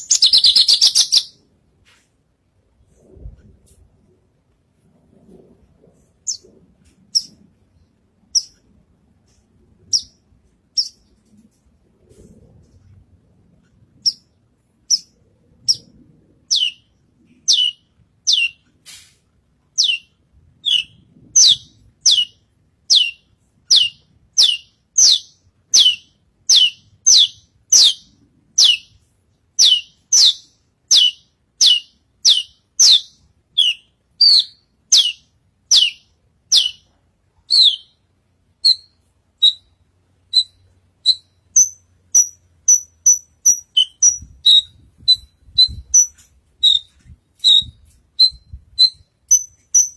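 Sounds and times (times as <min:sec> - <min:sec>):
bird singing whistled notes: 0:00.0 - 0:01.4, 0:09.9 - 0:10.2, 0:16.5 - 0:18.6, 0:19.8 - 0:29.0, 0:29.6 - 0:36.9, 0:37.5 - 0:38.0, 0:38.6 - 0:49.9.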